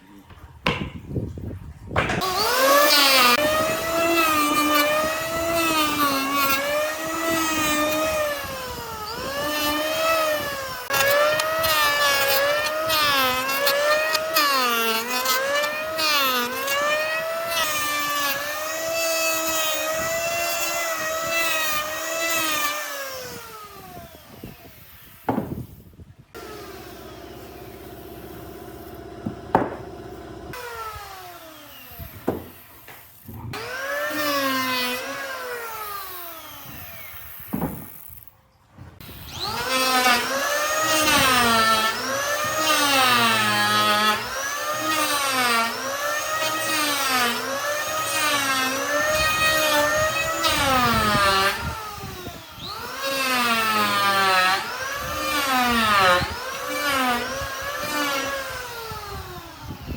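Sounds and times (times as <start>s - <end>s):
sharp knocks: 0.3s - 1.2s, 2.0s - 2.4s, 29.2s - 30.1s
power tool working wood: 2.0s - 25.7s, 26.4s - 38.2s, 39.0s - 59.9s.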